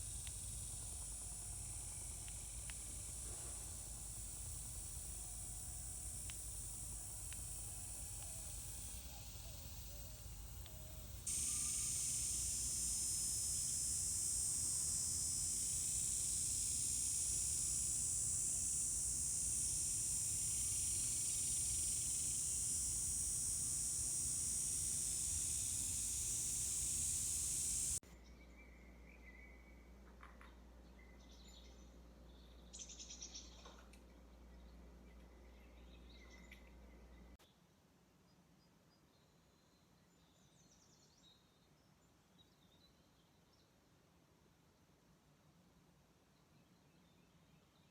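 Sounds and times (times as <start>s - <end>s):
high-pitched hiss: 0.0s - 28.0s.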